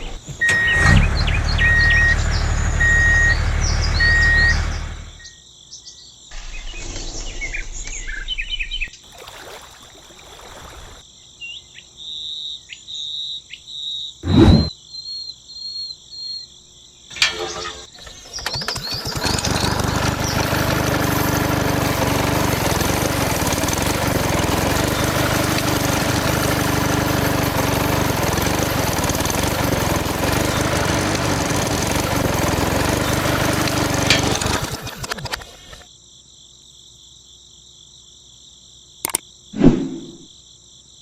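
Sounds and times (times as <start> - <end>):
diesel engine running: 0.0 - 5.2, 17.1 - 35.8
short click: 39.0 - 40.2.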